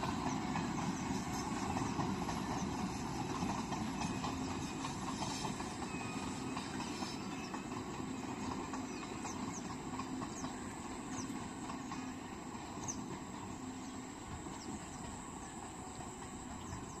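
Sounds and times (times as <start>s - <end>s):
train rumble and rail noise: 0.0s - 17.0s.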